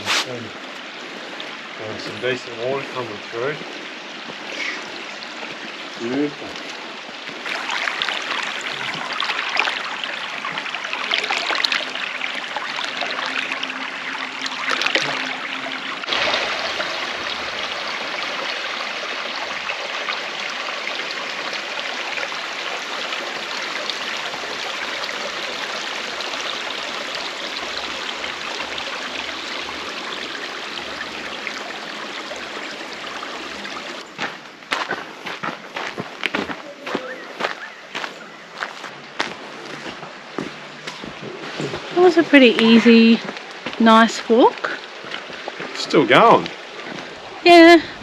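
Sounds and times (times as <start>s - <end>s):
water rushing over waterfall: 4.4s - 34.0s.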